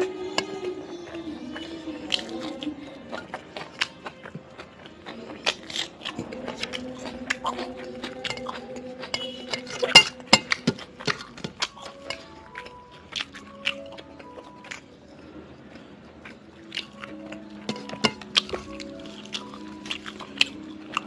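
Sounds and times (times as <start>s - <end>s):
chewing and biting: 0.0s - 21.0s
soft background music: 0.0s - 21.0s
dishes or cutlery clinking: 8.0s - 12.2s, 17.6s - 20.4s.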